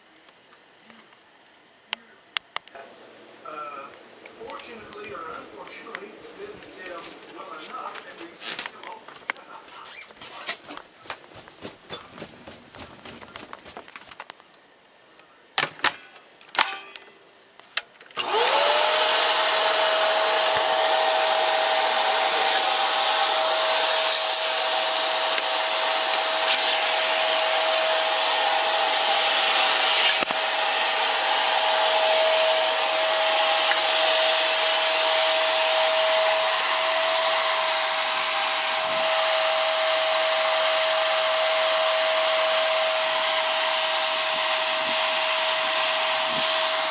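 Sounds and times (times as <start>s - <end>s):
vacuum cleaner motor whine: 18.2s - 46.9s.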